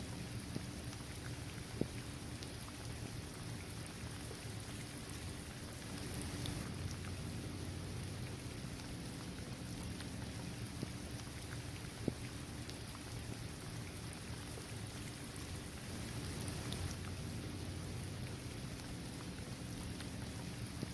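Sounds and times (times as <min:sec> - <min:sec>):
steady rain hiss: 0:00.0 - 0:20.9
raindrops ticking: 0:05.8 - 0:15.1, 0:15.8 - 0:20.9.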